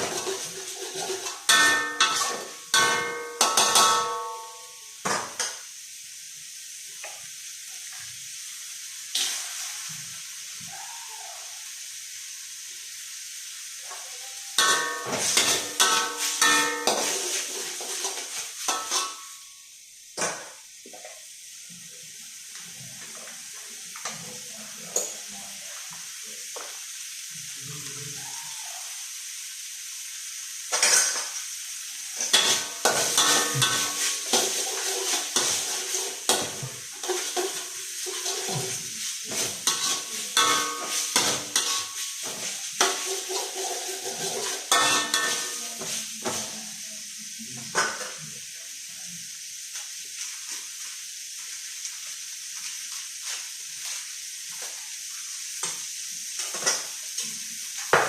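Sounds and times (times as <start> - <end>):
spatula scraping metal pan: 0.0 - 4.5, 14.6 - 19.3, 32.2 - 46.4
rice sizzling in a pan: 0.0 - 58.0.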